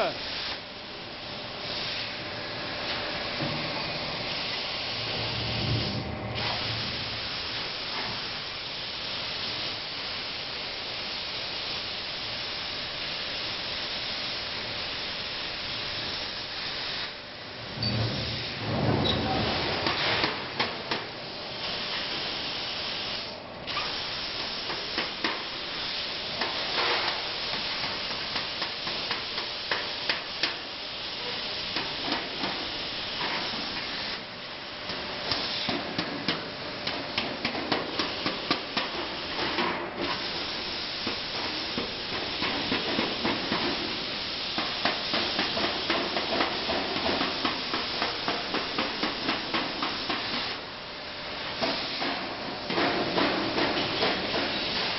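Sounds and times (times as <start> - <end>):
plasma arc hissing: 0.0 - 54.9.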